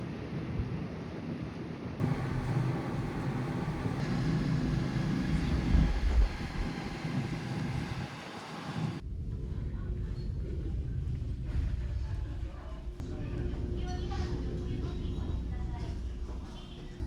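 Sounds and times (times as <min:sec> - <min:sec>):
broad noisy wash: 0:02.0 - 0:09.0
ferry engines droning: 0:02.0 - 0:11.6, 0:12.5 - 0:17.0.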